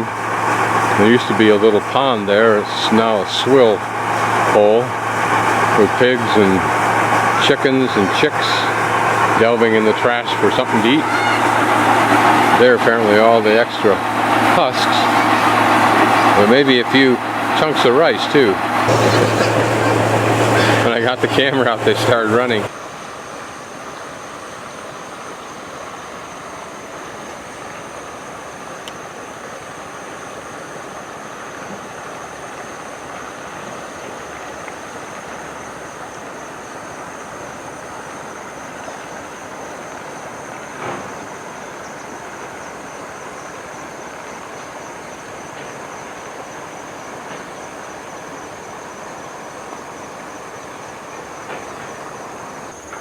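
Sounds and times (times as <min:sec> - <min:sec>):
rushing background noise: 0:00.0 - 0:23.7
high insect trill: 0:00.1 - 0:13.9, 0:18.9 - 0:53.0.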